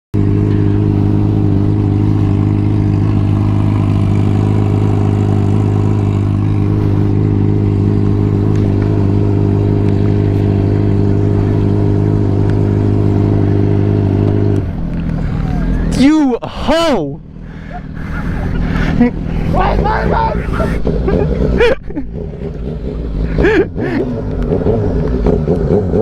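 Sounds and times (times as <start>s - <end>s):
motorcycle engine running: 0.2s - 26.0s.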